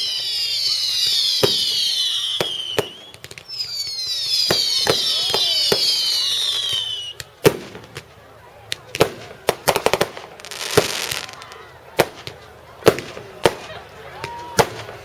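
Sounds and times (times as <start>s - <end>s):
firework whistles falling in pitch: 0.0s - 7.3s
firework hiss: 0.0s - 8.0s, 9.0s - 13.6s
firework bangs: 0.0s - 15.0s
firework cracks: 0.0s - 15.0s.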